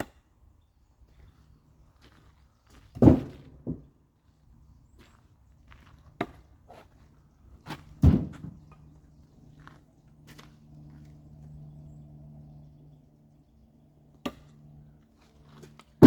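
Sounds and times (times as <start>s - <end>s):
firewood thudding: 3.0s - 3.8s, 8.0s - 8.6s.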